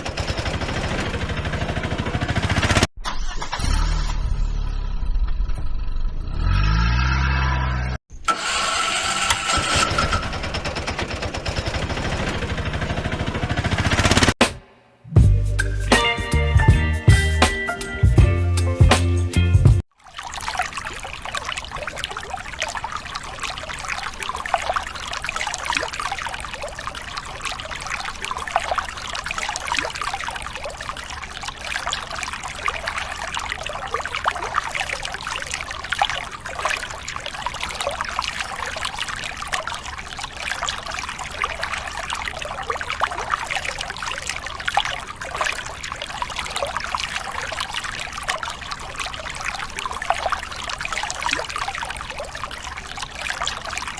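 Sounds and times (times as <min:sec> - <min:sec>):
water trickling and pouring: 0:19.8 - 0:53.9.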